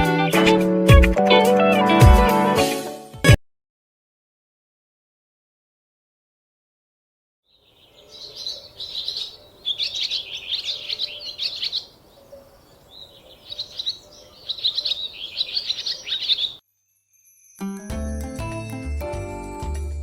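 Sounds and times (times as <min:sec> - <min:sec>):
songbird twittering: 0:07.5 - 0:16.6.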